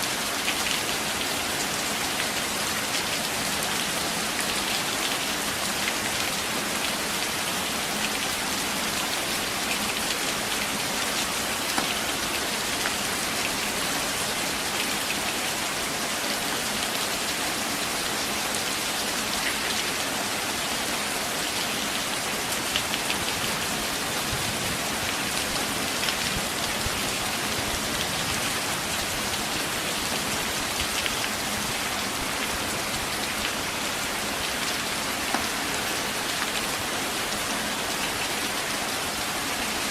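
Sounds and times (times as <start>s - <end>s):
rain falling on foliage: 0.0s - 39.9s
raindrop ticks: 4.6s - 15.4s.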